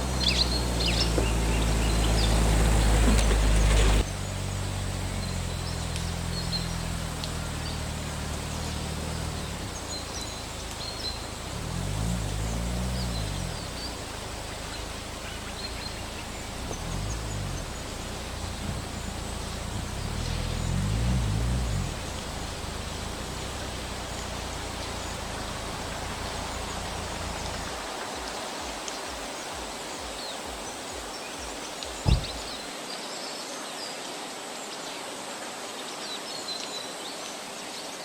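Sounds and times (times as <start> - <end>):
low engine hum: 0.0 - 27.9, 32.0 - 32.7
small birds chirping: 0.0 - 32.7
outdoor hiss: 0.0 - 32.9.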